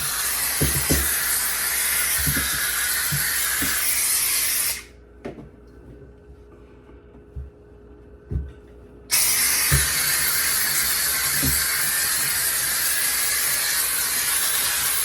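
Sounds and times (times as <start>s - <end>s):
steam cleaner hissing: 0.0s - 4.9s, 9.1s - 15.0s.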